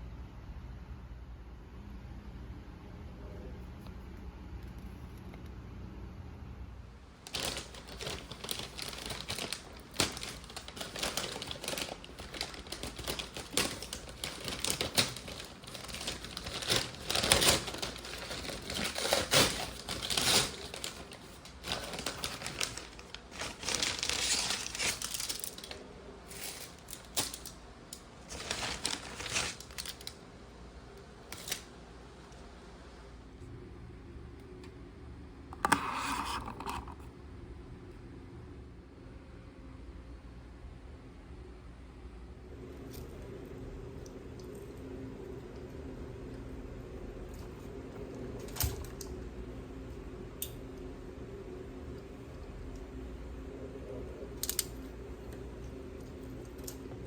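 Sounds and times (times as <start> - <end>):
packaging crinkling and rustling: 7.2 - 30.2, 31.3 - 31.7.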